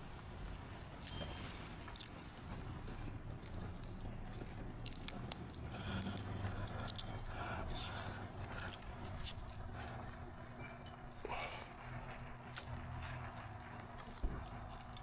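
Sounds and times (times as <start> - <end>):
small hard objects clicking: 3.3 - 7.2.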